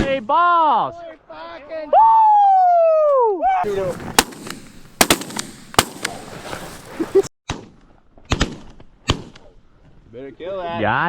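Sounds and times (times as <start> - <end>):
shotgun blasts: 3.7 - 6.9.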